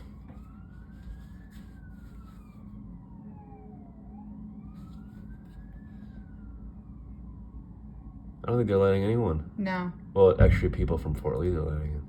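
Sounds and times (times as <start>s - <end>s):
emergency siren wailing: 0.0s - 8.6s
low rumble: 10.4s - 11.7s.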